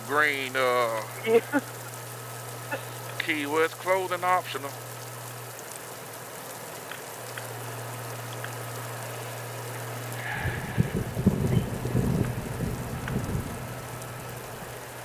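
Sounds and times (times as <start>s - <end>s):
rain hiss: 0.0s - 15.0s
steady low hum: 7.3s - 15.0s
low wind buffeting rumble: 10.2s - 15.0s.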